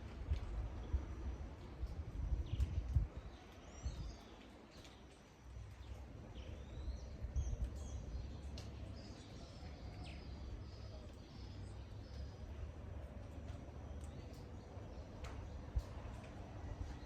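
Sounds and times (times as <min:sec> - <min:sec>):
rain drips: 0:00.0 - 0:17.0.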